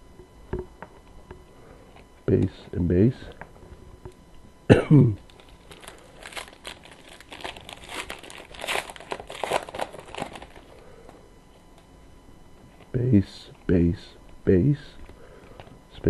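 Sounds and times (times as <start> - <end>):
foil wrapper crinkling: 5.2 - 10.8.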